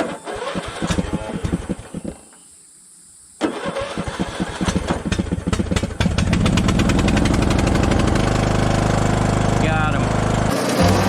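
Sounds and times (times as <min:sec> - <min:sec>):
mower engine running: 0:06.1 - 0:11.0.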